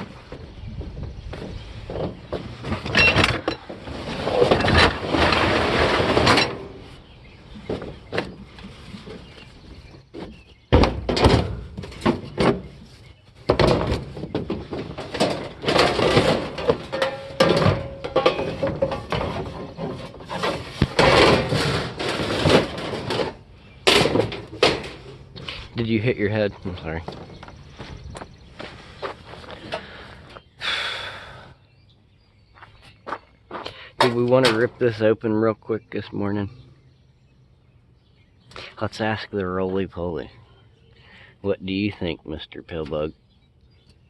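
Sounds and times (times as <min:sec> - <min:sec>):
metal knocks and clanks: 0:00.0 - 0:06.9, 0:10.1 - 0:25.7
metal rattling and scraping: 0:00.0 - 0:30.4, 0:34.0 - 0:35.2.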